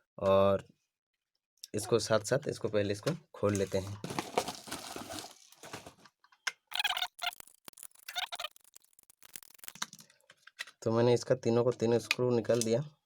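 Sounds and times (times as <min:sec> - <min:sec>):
screwdriver turning screws: 0:06.7 - 0:09.9.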